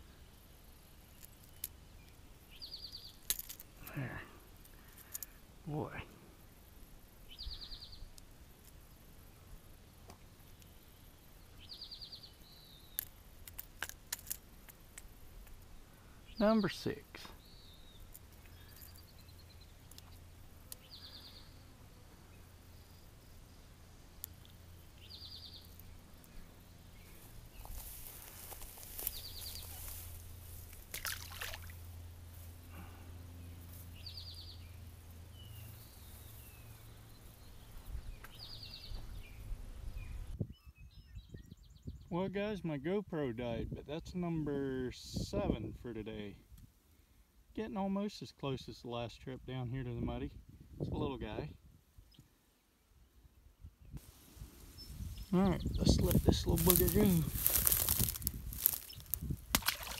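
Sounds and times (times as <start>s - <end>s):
songbird trill: 0.0s - 46.4s, 47.3s - 59.9s.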